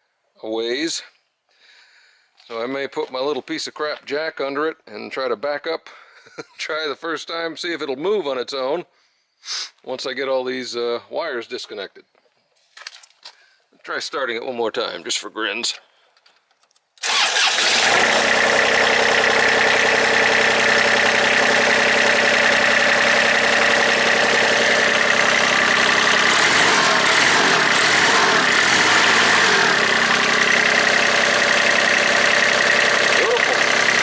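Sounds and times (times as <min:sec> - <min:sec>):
diesel engine idling: 0:17.0 - 0:34.0.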